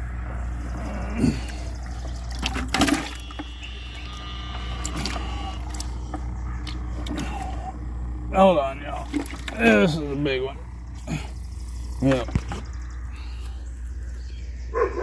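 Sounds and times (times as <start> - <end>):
steady low hum: 0.0 - 15.0
water sloshing and splashing: 0.7 - 8.0, 8.9 - 10.0.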